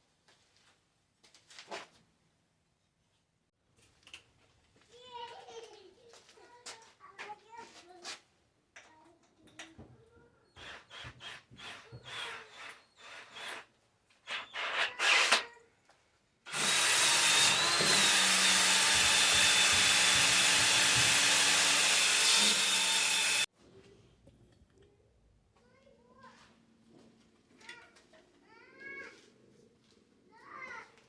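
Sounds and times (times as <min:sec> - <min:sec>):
electric power tool running: 0:16.5 - 0:23.5.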